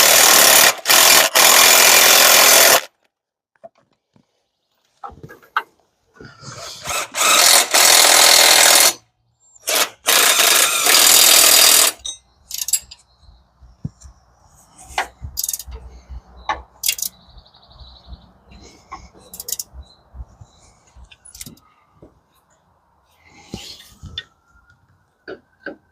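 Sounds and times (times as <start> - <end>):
power tool running: 6.8 - 9.0, 9.6 - 12.0
clicks and knocks of tools: 12.0 - 13.1, 15.0 - 15.9, 16.5 - 17.2, 18.9 - 19.7, 21.1 - 21.7.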